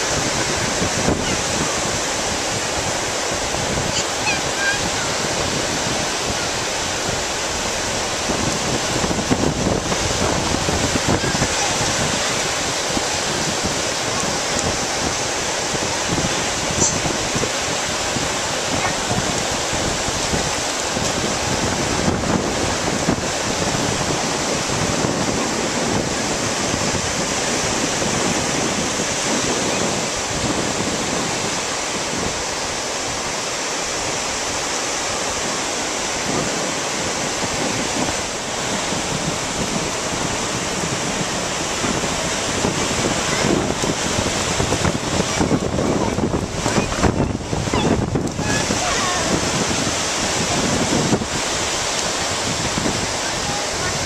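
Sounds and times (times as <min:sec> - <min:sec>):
ocean surf washing onto beach: 0:00.0 - 0:54.0
wind buffeting microphone: 0:00.0 - 0:54.0.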